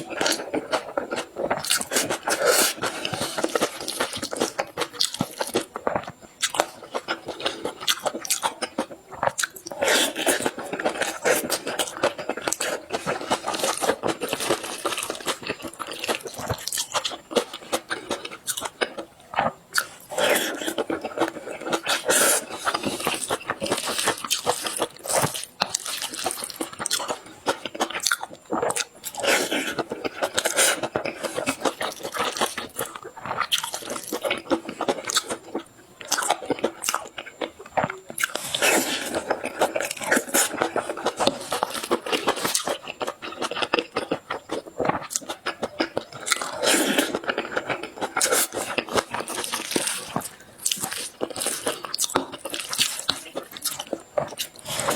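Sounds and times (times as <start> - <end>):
crunchy bites and chewing: 0.0 - 54.9.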